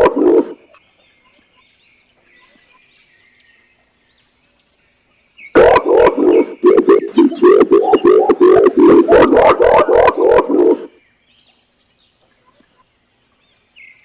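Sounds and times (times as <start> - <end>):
pigeon hooting: 0.0 - 0.6, 5.6 - 11.0
small birds chirping: 0.0 - 14.0.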